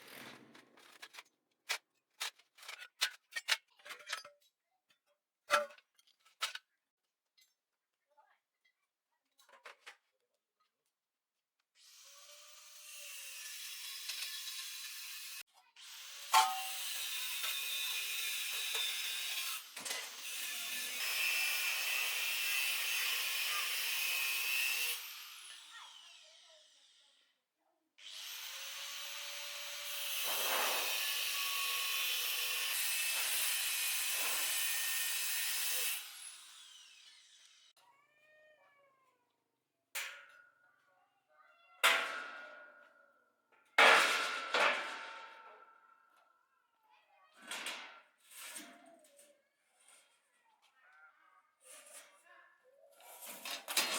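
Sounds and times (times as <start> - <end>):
sharp metal clanks: 16.4 - 16.8
electric power tool running: 19.5 - 27.0, 28.0 - 37.7.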